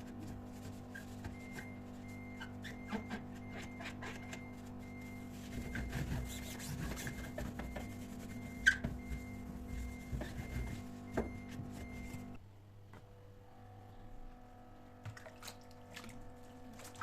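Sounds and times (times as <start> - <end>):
objects rubbing and scraping: 0.0 - 12.4
steady electrical hum: 0.0 - 17.0.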